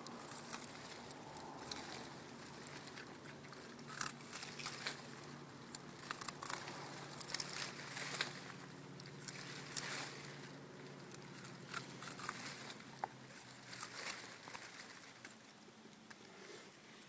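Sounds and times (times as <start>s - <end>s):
dog chewing broccoli: 0.2s - 8.1s, 10.9s - 14.1s.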